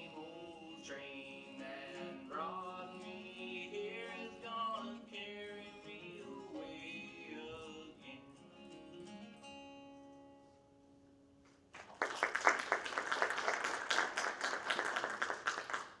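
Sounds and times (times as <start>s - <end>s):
acoustic string band playing: 0.0s - 7.9s
audience applause: 11.7s - 16.0s.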